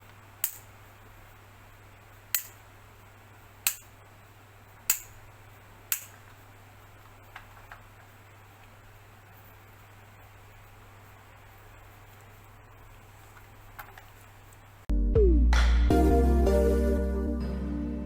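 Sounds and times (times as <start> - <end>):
low steady hum: 0.0 - 18.0
sharp clicks: 3.6 - 3.9, 4.8 - 5.2, 5.9 - 6.4.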